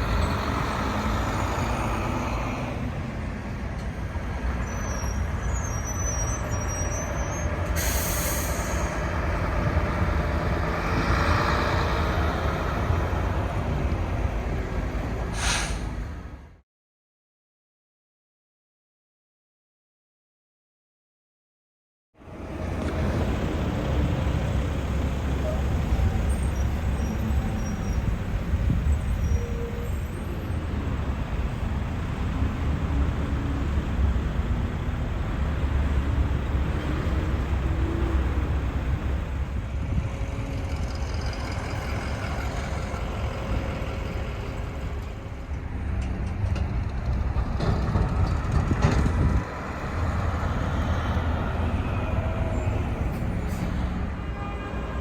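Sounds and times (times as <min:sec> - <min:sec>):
garbage trucks engine rumble: 0:00.0 - 0:16.5, 0:22.2 - 0:55.0.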